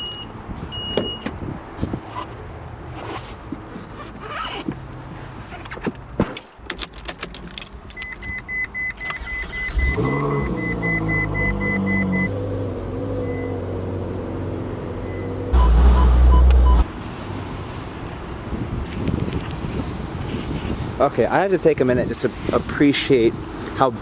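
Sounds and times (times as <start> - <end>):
car engine starting and idling: 9.1 - 17.2
warning chime beeping: 15.1 - 16.8.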